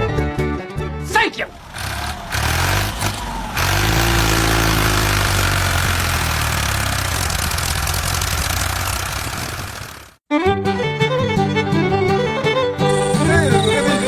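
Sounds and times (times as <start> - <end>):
small engine running: 1.5 - 10.2.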